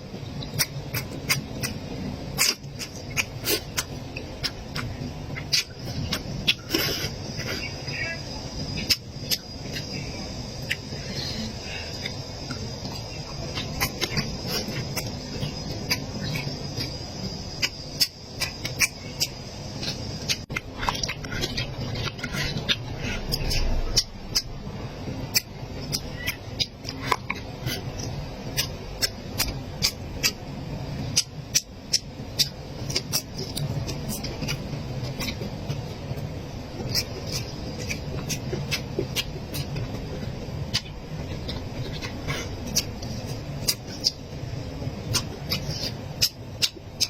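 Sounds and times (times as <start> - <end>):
low background noise: 0.0 - 47.0
lip smacks and mouth clicks: 0.4 - 7.7, 36.8 - 44.3, 45.0 - 47.0
chewing: 0.4 - 24.5, 25.3 - 30.4, 31.0 - 36.2, 36.8 - 44.3, 45.0 - 47.0.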